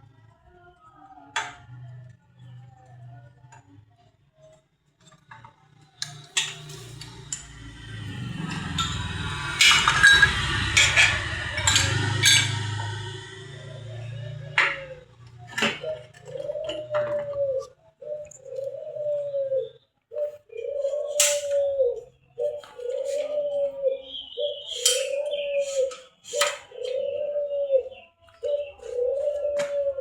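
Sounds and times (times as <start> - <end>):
metal pieces clinking and scraping: 9.6 - 12.6.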